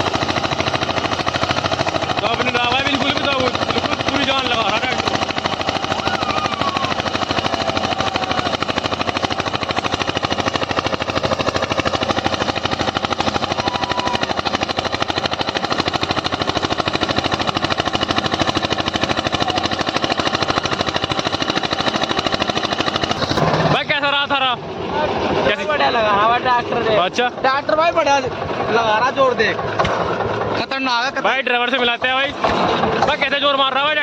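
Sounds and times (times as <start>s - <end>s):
tractor diesel engine chugging: 0.0s - 34.0s.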